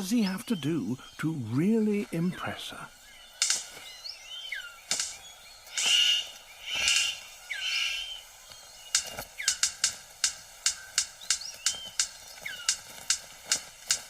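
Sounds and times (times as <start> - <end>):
harsh buzzy bird calls: 0.0 - 14.0
bird sharp clicks and snaps: 3.4 - 3.9, 4.8 - 7.9, 8.5 - 14.0.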